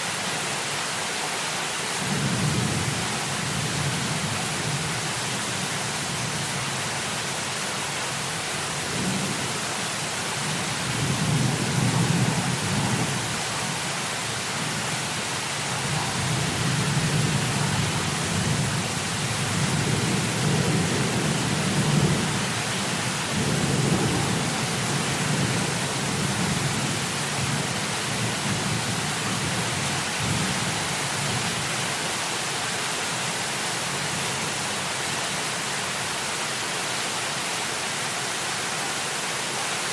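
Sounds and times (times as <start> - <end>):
heavy rain hissing: 0.0 - 39.9
thunder rumbling: 10.8 - 14.0, 15.6 - 22.5, 23.2 - 27.6.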